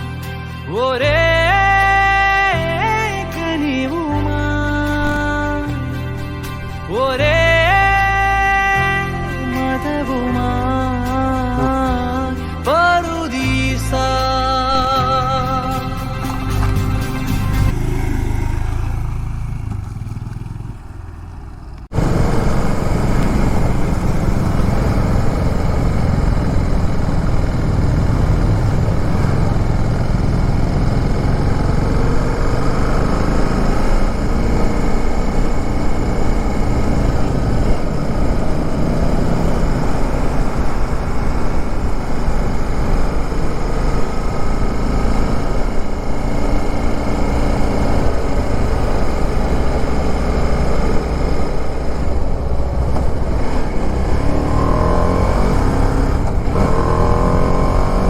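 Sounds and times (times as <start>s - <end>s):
song playing: 0.0s - 17.8s
motorcycle engine running: 0.0s - 58.0s.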